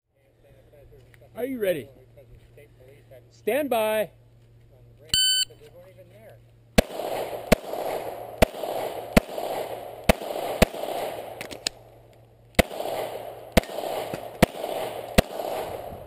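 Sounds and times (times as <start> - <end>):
pistol shots: 6.8 - 11.8, 12.6 - 16.0.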